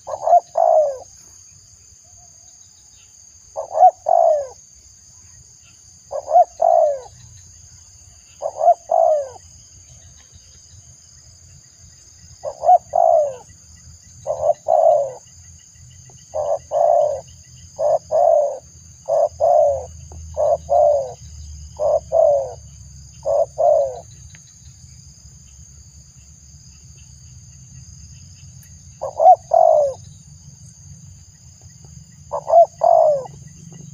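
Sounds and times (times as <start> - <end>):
dove cooing: 0.0 - 1.1, 3.6 - 4.6, 6.1 - 7.2, 8.4 - 9.4, 12.4 - 13.5, 14.2 - 15.2, 16.3 - 21.2, 21.8 - 22.6, 23.2 - 24.1, 29.0 - 30.0, 32.3 - 33.9.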